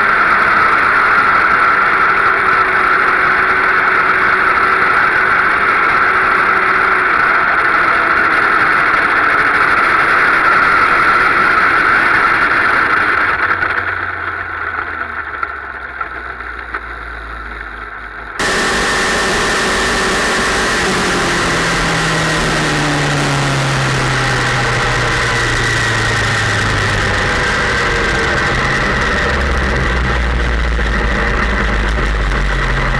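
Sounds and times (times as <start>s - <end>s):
motorcycle engine: 12.5s - 32.9s.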